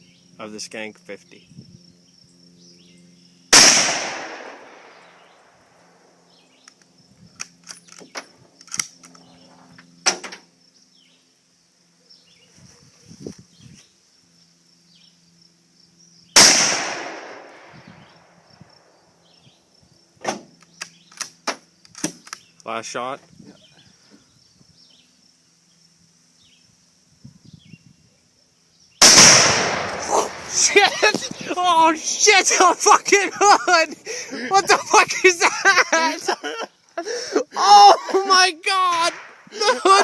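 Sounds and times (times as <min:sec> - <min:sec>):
crickets chirping: 0:00.0 - 0:40.0
gunshots with echo: 0:29.0 - 0:30.7.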